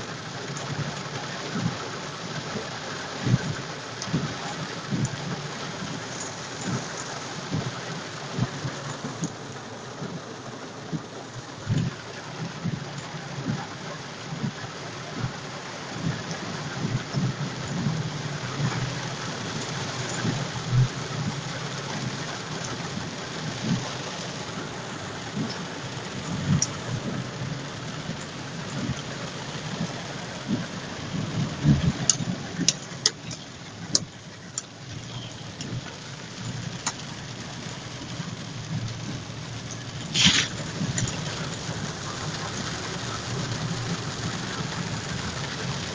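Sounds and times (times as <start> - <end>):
heavy rain hissing: 0.0 - 45.9
low thuds: 15.2 - 36.9.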